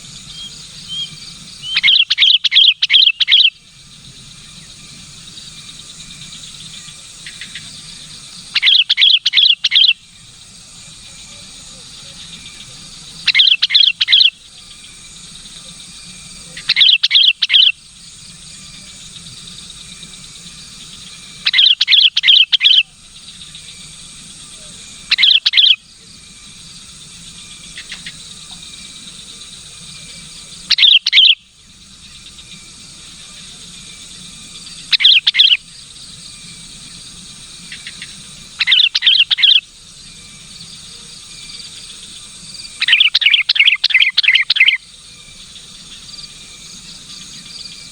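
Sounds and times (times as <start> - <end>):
bulbul chirping bursts: 0.3 - 3.6, 8.5 - 10.2, 13.0 - 14.5, 16.6 - 17.8, 21.3 - 22.9, 25.0 - 25.8, 30.6 - 31.5, 34.7 - 35.7, 37.7 - 39.7, 42.7 - 45.0.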